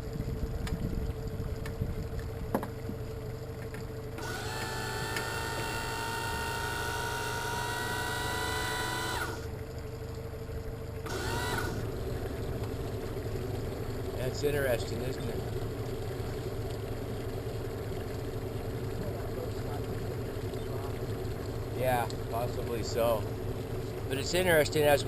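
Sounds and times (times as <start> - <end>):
low motor rumble: 0.0 - 25.0
high whine: 4.2 - 9.5.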